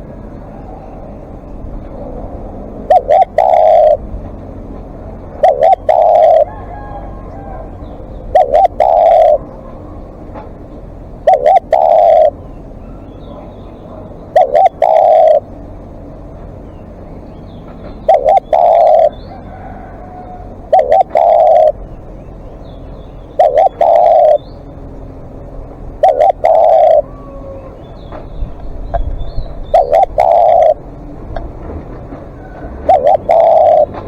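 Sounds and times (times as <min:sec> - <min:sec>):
dove cooing: 0:00.0 - 0:16.0, 0:17.9 - 0:22.2, 0:23.2 - 0:25.0, 0:25.7 - 0:34.0
faint bird chirps: 0:02.8 - 0:04.0, 0:05.4 - 0:06.6, 0:07.2 - 0:10.1, 0:11.2 - 0:15.7, 0:16.6 - 0:24.7, 0:26.0 - 0:30.8, 0:32.4 - 0:34.0.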